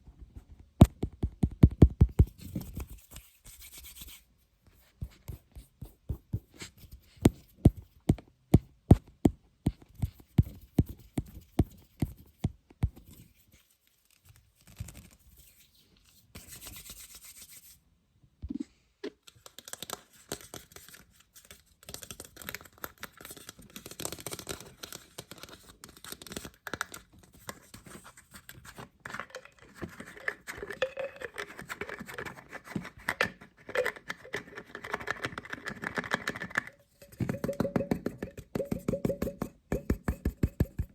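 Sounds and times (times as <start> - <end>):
scratching and rubbing on a lid: 29.2 - 40.9
sharp taps on a lid: 37.1 - 40.9.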